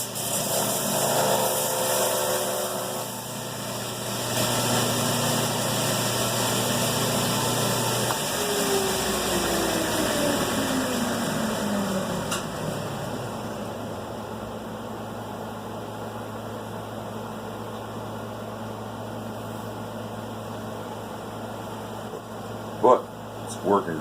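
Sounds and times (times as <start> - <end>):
belt grinder winding down: 4.2 - 13.1.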